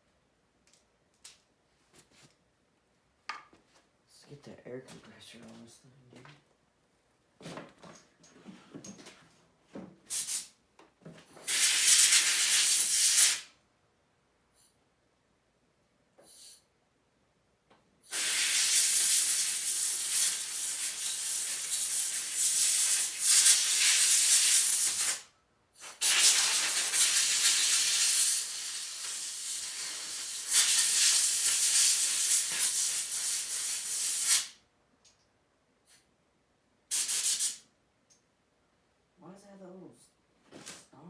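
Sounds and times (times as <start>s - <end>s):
compressed air hissing: 10.1s - 10.5s, 11.5s - 13.5s, 18.1s - 34.6s, 36.9s - 37.6s.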